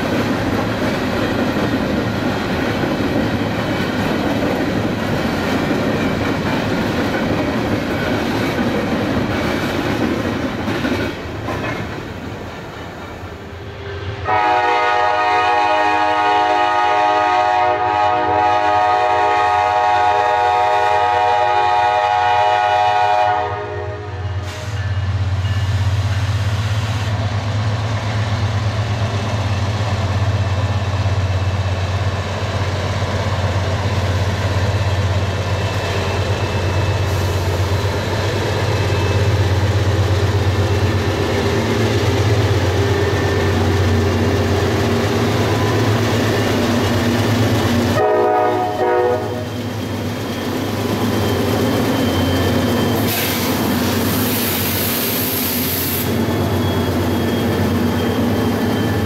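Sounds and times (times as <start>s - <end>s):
freight train rolling past: 0.0s - 59.0s
train air horn: 13.5s - 25.0s, 48.0s - 49.6s, 53.1s - 53.6s.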